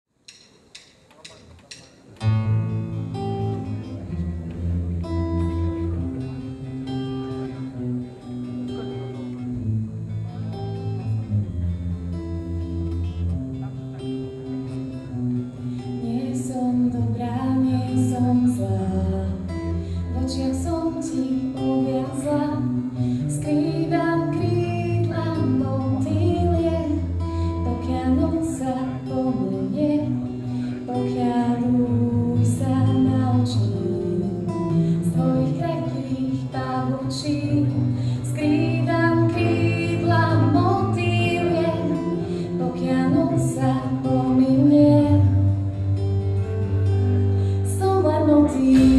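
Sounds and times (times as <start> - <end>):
acoustic guitar: 2.0 - 48.9
woman singing: 16.0 - 45.8, 47.6 - 48.9
bass line: 48.5 - 48.9.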